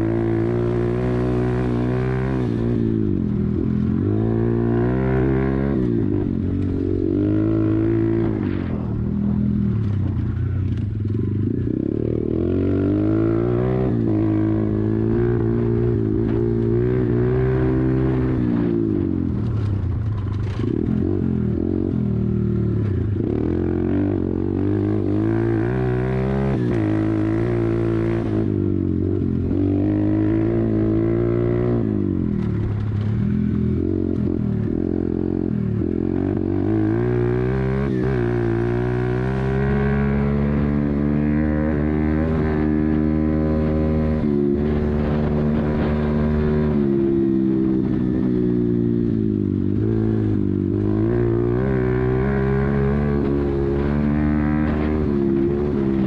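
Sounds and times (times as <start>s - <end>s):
pit bike engine revving: 49.2s - 56.0s.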